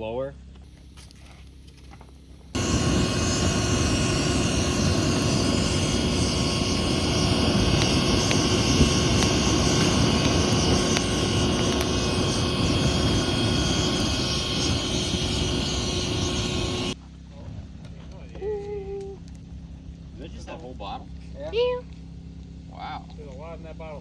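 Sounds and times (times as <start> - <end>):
small engine running steadily: 2.6 - 17.2.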